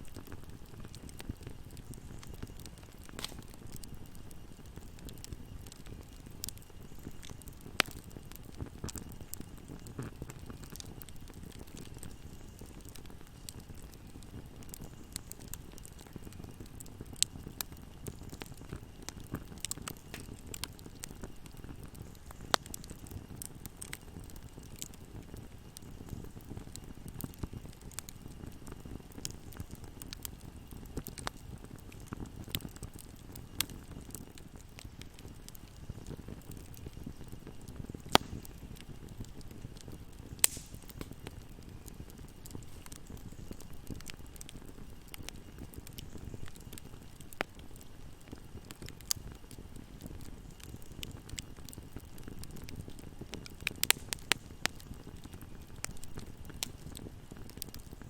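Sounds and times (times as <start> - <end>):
fireplace fire crackling: 0.0 - 58.0
sharp pops of fire: 0.0 - 58.0.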